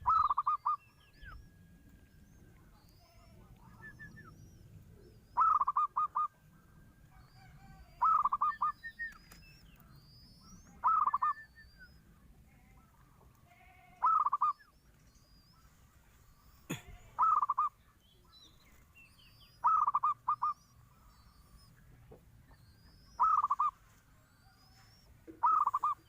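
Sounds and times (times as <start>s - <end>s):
dove cooing: 0.0s - 1.4s, 2.4s - 6.4s, 7.1s - 9.4s, 10.4s - 11.8s, 14.0s - 14.7s, 16.4s - 17.8s, 19.5s - 21.8s, 22.5s - 26.0s
small birds chirping: 0.0s - 26.0s.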